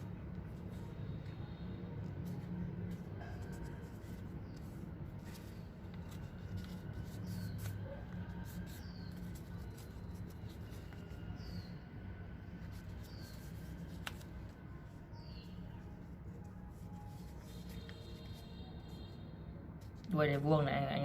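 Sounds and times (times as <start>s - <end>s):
paper rustling and crackling: 2.1s - 11.7s, 12.6s - 15.3s, 15.9s - 18.4s.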